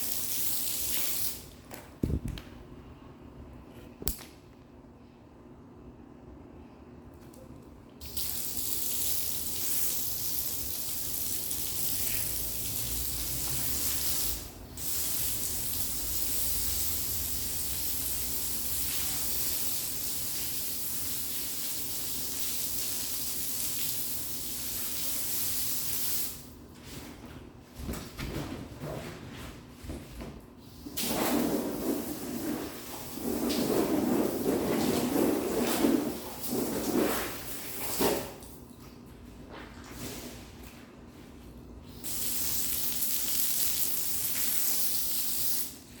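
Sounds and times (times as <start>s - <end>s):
water running from tap: 8.0s - 14.0s, 14.8s - 26.0s, 42.1s - 45.4s.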